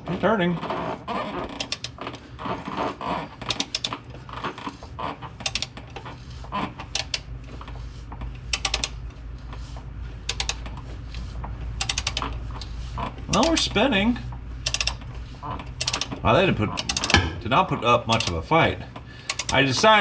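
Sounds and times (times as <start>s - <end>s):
ratchet wrench clicking: 1.5s - 2.1s, 3.4s - 4.0s, 5.4s - 5.8s, 6.8s - 7.3s, 8.5s - 9.0s, 10.3s - 11.2s, 11.8s - 13.8s, 14.6s - 16.2s, 16.8s - 17.2s, 18.1s - 18.5s, 19.2s - 19.7s.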